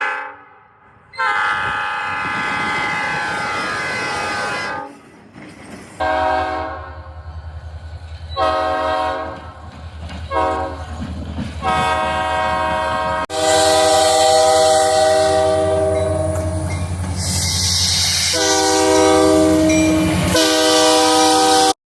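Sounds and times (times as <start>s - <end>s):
locomotive air horn blasts: 0.0s - 0.6s, 1.2s - 4.9s, 6.0s - 7.0s, 8.4s - 9.5s, 10.3s - 10.8s, 11.6s - 21.8s.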